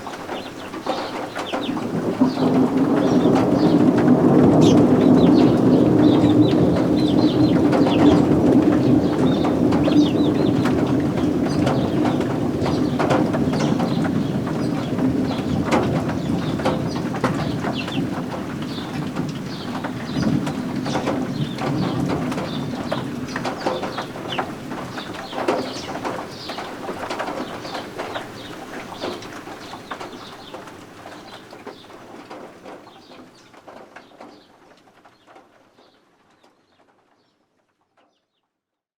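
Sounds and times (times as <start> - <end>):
steady rain: 0.0 - 37.8
baby birds peeping: 4.6 - 30.6.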